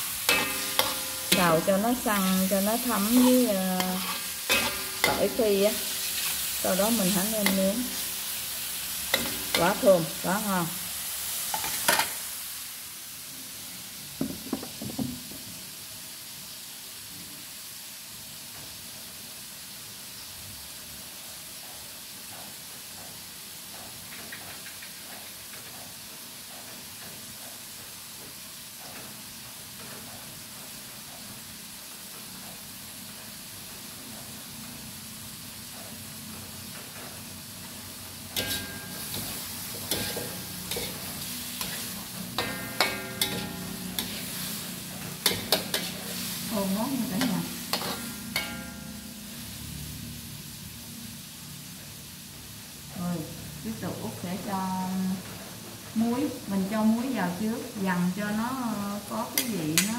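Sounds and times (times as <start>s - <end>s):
metal ladle scraping a wok: 0.0s - 10.0s, 38.3s - 49.2s
seafood sizzling in a wok: 0.0s - 59.9s.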